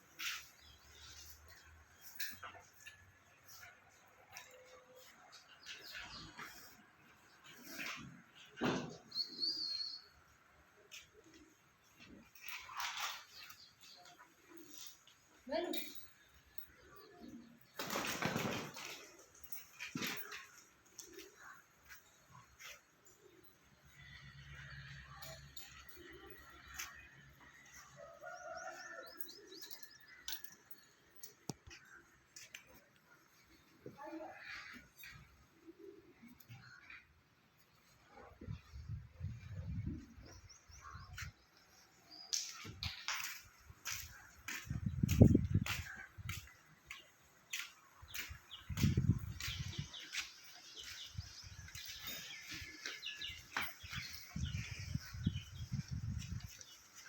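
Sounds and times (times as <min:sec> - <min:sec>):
birds chirping: 0:00.0 - 0:57.0
wind rumbling on microphone: 0:44.6 - 0:46.4, 0:48.7 - 0:50.0, 0:54.0 - 0:56.7.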